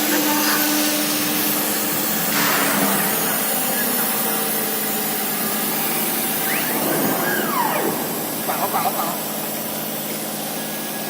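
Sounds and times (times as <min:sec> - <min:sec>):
router spindle cutting metal: 0:03.0 - 0:11.0.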